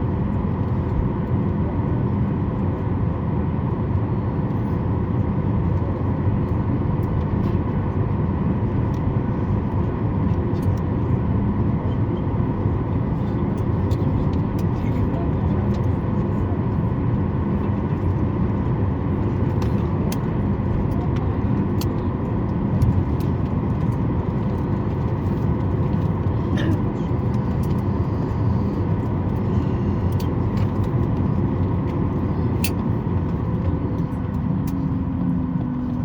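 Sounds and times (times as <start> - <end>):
faint steady whines: 0.0 - 36.0
low rumble of idling jet engines: 0.0 - 36.0.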